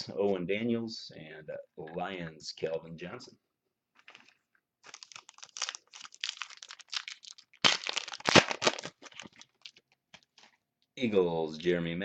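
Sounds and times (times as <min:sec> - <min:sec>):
card pack wrapper crinkling: 0:04.0 - 0:10.6.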